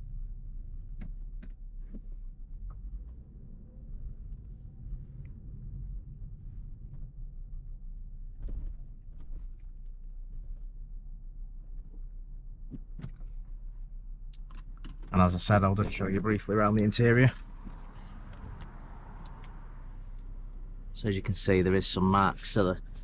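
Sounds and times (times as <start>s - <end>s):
car engine idling: 9.9s - 23.0s.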